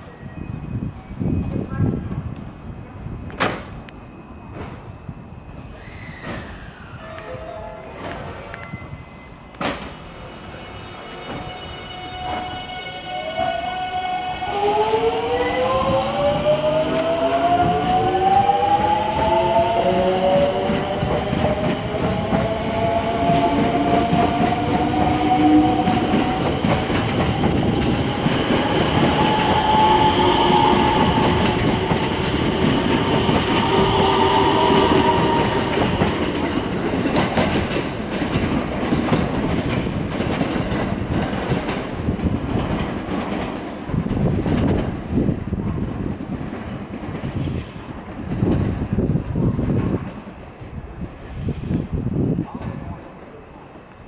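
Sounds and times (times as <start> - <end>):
rumble of train cars: 0.0 - 54.0
electric train motor whine: 11.7 - 36.4.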